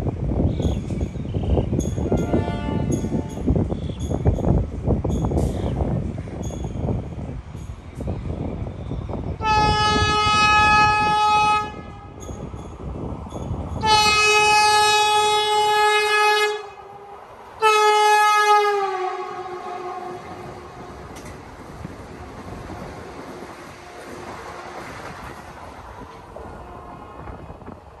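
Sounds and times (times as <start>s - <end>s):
train rumbling on track: 0.0s - 28.0s
train horn blasts: 2.0s - 3.5s, 9.4s - 12.2s, 13.8s - 21.2s, 23.7s - 24.9s, 26.6s - 27.4s.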